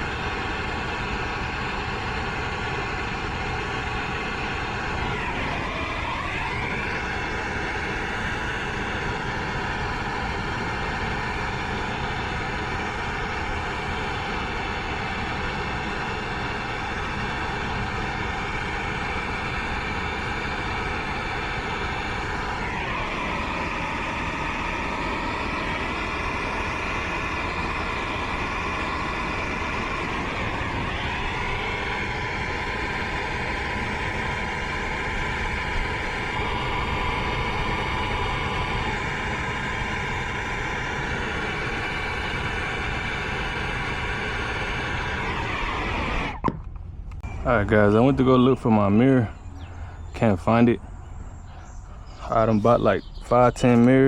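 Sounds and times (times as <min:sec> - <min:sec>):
torch flame roaring: 0:00.0 - 0:54.0
faint whistling tones: 0:47.2 - 0:54.0.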